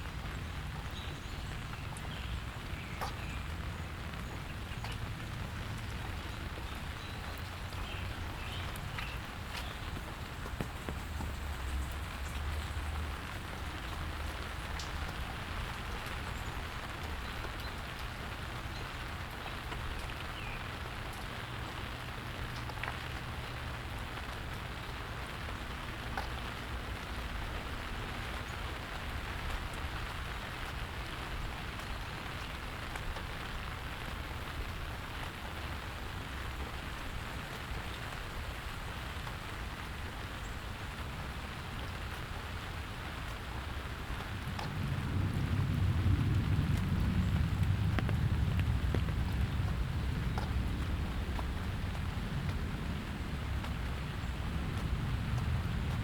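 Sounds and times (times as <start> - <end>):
rain pattering on surfaces: 0.0 - 56.0.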